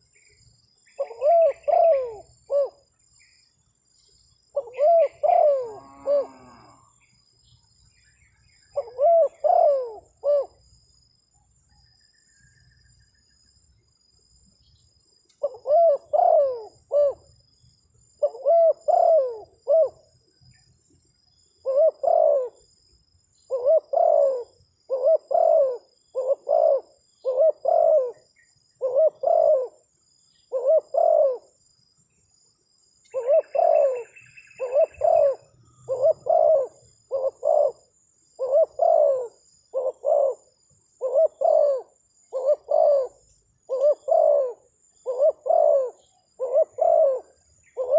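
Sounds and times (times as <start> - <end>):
dove cooing: 0.9 - 2.8, 4.6 - 6.7, 8.7 - 10.6, 15.4 - 17.3, 18.2 - 20.1, 21.6 - 22.6, 23.5 - 29.8, 30.5 - 31.5, 33.1 - 47.9.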